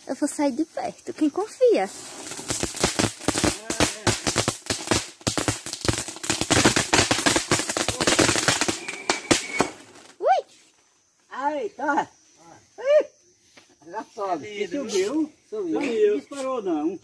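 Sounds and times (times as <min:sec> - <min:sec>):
firecrackers banging and crackling: 0:01.4 - 0:10.2.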